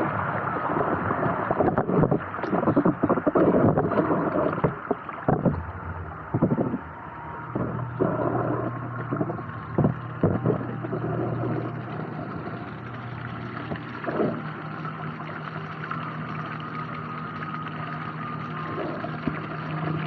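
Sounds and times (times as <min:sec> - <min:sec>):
knocks and splashes: 0:00.0 - 0:12.4
steady low hum: 0:00.0 - 0:20.0
water flowing and gurgling: 0:00.0 - 0:20.0.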